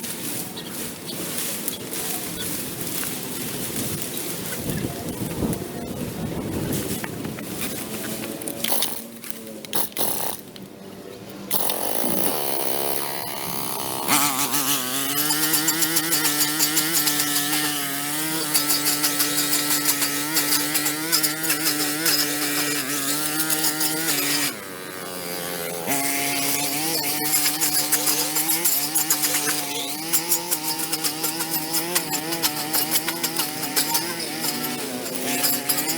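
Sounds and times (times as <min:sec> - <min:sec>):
small gas engine power tool cutting: 0:08.6 - 0:09.0, 0:09.7 - 0:10.4, 0:11.5 - 0:35.9.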